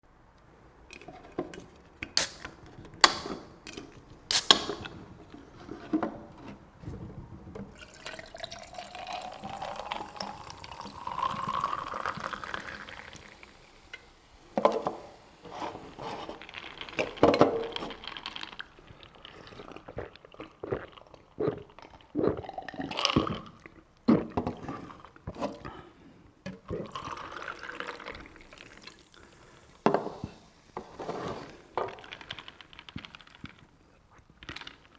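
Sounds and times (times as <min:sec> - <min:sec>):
slurping: 0:02.2 - 0:03.2, 0:04.3 - 0:05.5, 0:07.8 - 0:25.8, 0:26.7 - 0:34.9
soda pouring into a glass: 0:04.3 - 0:04.9, 0:07.7 - 0:23.6, 0:26.7 - 0:33.0
ice clinking: 0:07.7 - 0:19.3, 0:26.9 - 0:33.3.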